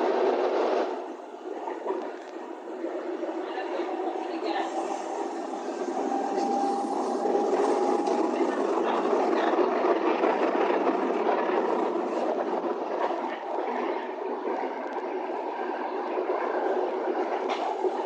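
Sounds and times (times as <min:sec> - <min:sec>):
train running noise: 0:00.0 - 0:18.0
faint high whine: 0:01.0 - 0:10.0.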